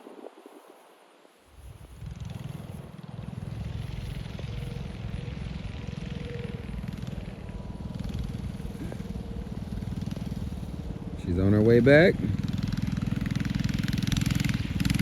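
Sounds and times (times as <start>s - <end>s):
small engine running steadily: 1.4s - 15.0s.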